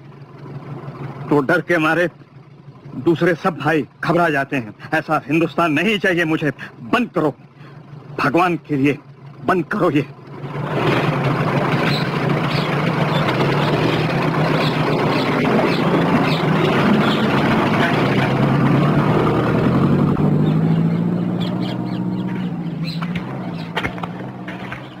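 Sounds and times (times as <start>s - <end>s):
car engine running: 0.0s - 25.0s
noisy rush: 10.4s - 25.0s.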